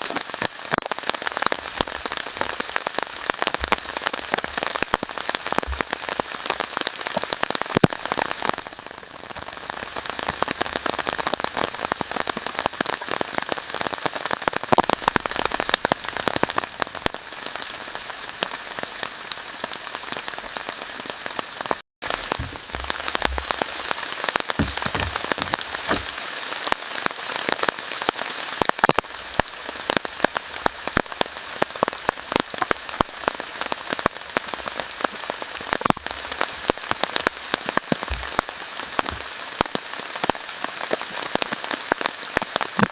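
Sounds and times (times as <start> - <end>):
steady rain falling: 0.0 - 42.9
low thuds: 22.1 - 26.2.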